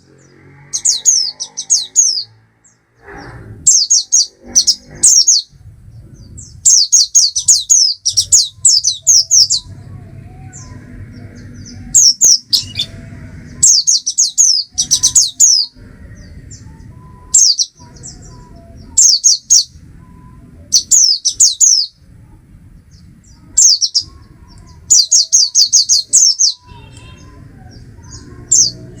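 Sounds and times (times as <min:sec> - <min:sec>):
bird singing high notes: 0:10.5 - 0:22.0.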